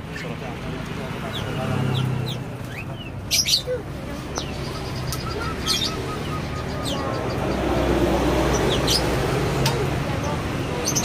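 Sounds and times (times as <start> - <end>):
birds chirping: 0.0 - 11.0
faint voices: 0.0 - 11.0.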